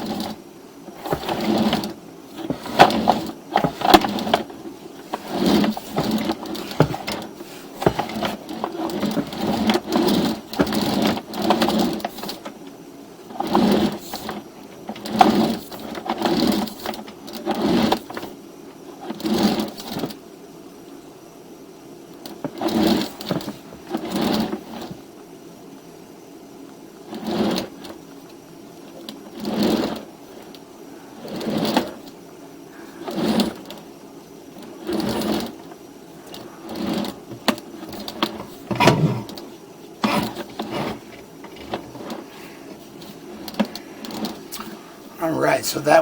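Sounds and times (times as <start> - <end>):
cable reel rattling: 1.0 - 12.4, 34.6 - 44.8.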